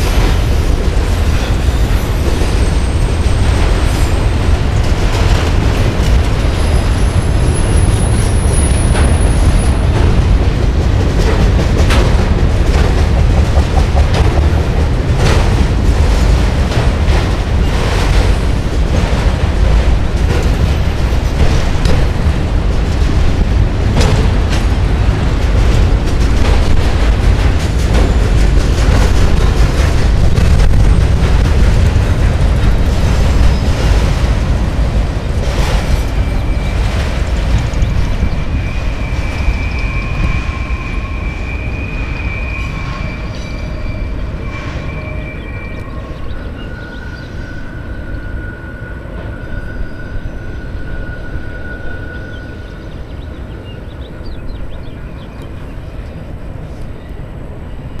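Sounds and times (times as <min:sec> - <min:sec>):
freight train wheels rumbling: 0:00.0 - 0:58.0
faint high squeal: 0:37.8 - 0:53.4.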